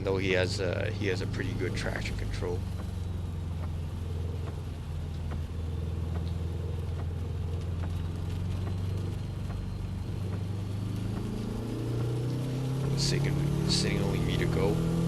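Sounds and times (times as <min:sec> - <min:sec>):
car engine low drone: 0:00.0 - 0:15.0
faint ticks: 0:02.6 - 0:13.2.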